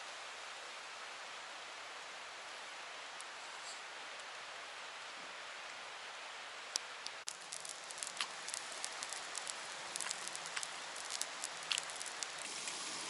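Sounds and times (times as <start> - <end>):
oil popping and crackling: 7.0 - 13.0
food sizzling in hot oil: 7.3 - 13.0.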